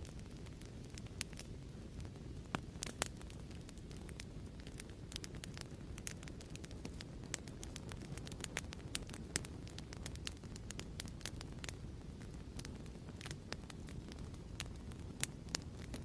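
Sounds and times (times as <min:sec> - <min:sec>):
fireplace crackling and popping: 0:00.0 - 0:16.0
low rumble of burning fire: 0:00.0 - 0:16.0.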